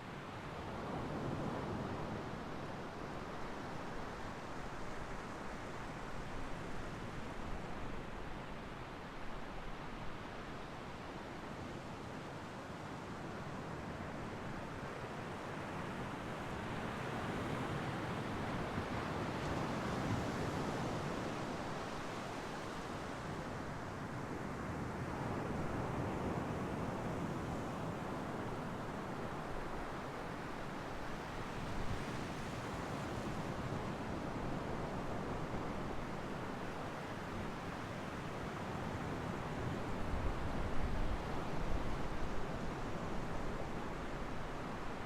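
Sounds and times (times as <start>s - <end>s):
wind rumble on microphone: 38.4s - 45.0s.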